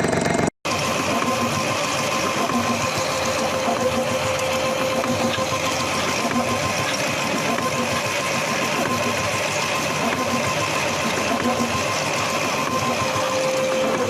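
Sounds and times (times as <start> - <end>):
factory machine chatter: 0.0 - 14.0
steady machine hum: 0.0 - 14.0.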